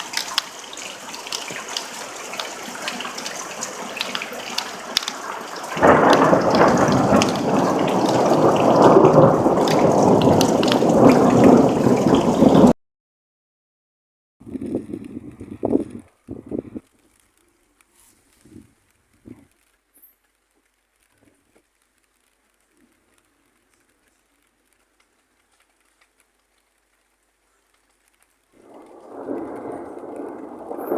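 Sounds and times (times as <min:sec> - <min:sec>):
steady rain with drops ticking: 0:00.0 - 0:12.8, 0:14.4 - 0:30.9
thunder rumbling: 0:00.4 - 0:12.8, 0:28.6 - 0:30.9.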